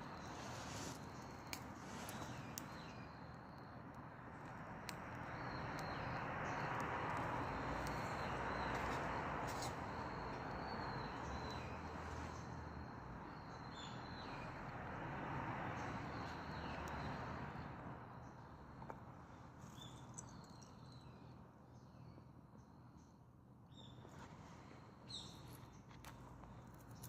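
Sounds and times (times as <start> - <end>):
rushing flame in wood stove: 0.0 - 3.2, 4.3 - 17.6.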